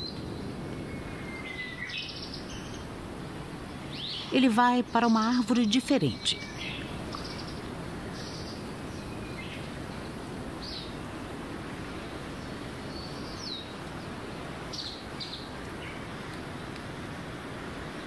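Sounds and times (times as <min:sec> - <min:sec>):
birds chirping: 0:00.0 - 0:14.1
outdoor background hiss: 0:00.0 - 0:18.0.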